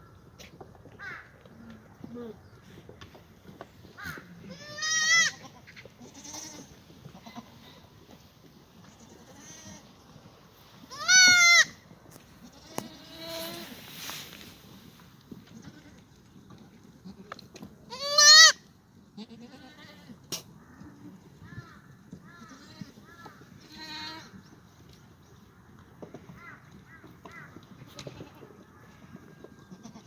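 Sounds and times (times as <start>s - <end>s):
goat bleating loudly: 4.0s - 7.8s, 8.9s - 9.9s, 10.8s - 11.8s, 12.4s - 13.6s, 15.5s - 16.0s, 17.9s - 18.6s, 19.2s - 20.2s, 22.4s - 23.0s, 23.6s - 24.3s, 29.7s - 30.0s
faint goat bleats: 4.0s - 7.9s, 8.8s - 9.9s, 19.2s - 24.4s, 29.6s - 30.0s.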